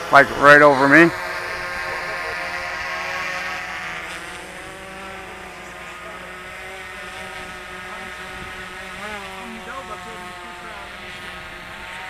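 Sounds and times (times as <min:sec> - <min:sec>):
model aircraft motor whine: 0:00.0 - 0:12.0.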